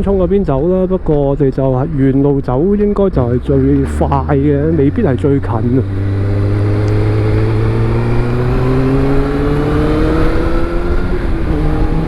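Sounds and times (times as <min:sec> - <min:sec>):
motorcycle engine revving: 0:02.7 - 0:12.0.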